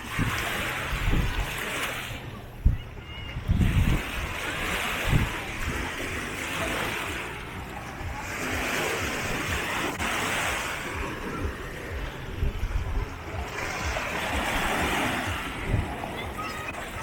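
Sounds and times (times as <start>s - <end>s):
small waves washing onto beach: 0.0s - 17.0s.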